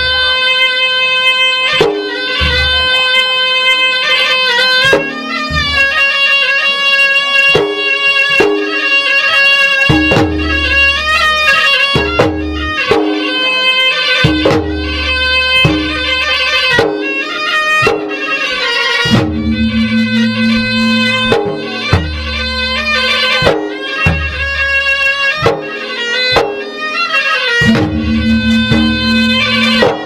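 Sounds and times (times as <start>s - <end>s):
reed shawm melody: 0.0s - 30.0s
sharp drum strokes: 1.7s - 3.1s, 4.6s - 9.2s, 9.8s - 27.0s, 27.6s - 30.0s
deep resonant drum booms: 19.1s - 23.1s, 27.6s - 30.0s.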